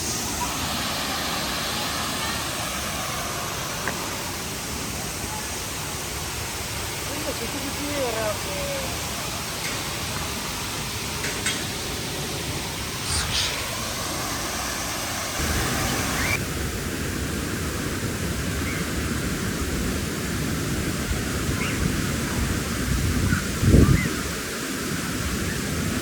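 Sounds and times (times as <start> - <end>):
steady rushing noise: 12.8 - 18.0.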